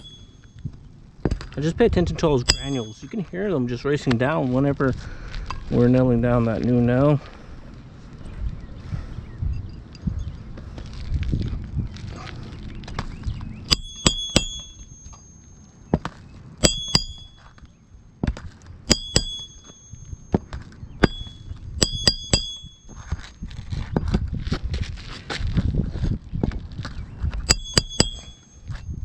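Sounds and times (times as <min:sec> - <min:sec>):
hammer driving nails: 0:18.9 - 0:19.9.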